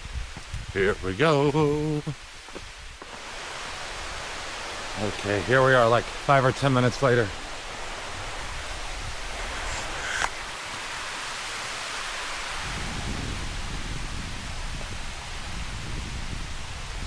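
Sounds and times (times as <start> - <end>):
waterfall rushing: 3.0 - 17.0.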